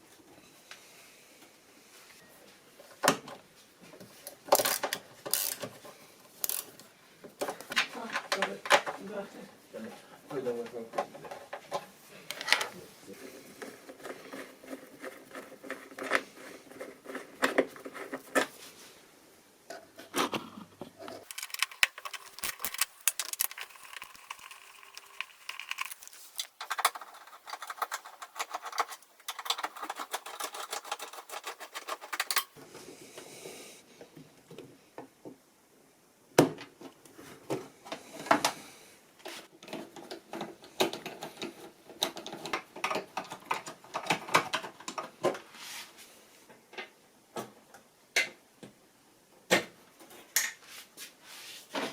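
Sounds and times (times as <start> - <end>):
tools and panels clicking: 21.2 - 32.6.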